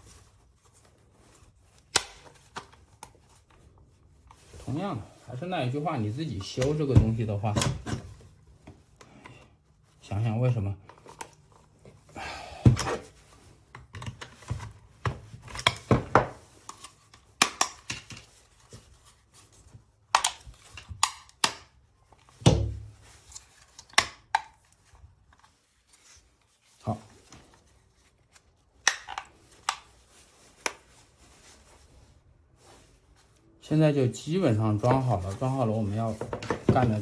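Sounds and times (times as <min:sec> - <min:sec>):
parts knocking together: 0:22.4 - 0:23.0, 0:36.2 - 0:37.0.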